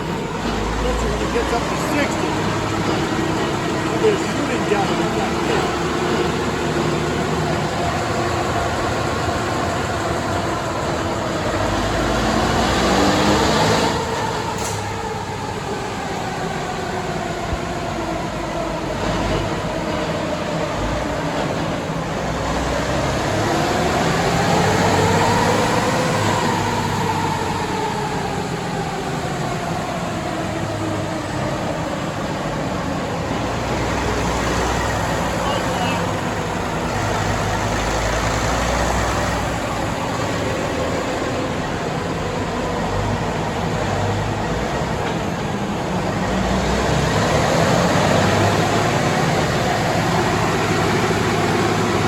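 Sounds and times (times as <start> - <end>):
diesel engine revving under load: 0.0 - 52.0.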